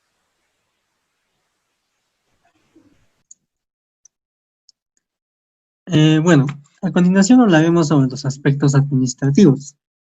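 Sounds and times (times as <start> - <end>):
faint recording hiss: 0.0 - 3.5, 5.9 - 9.8.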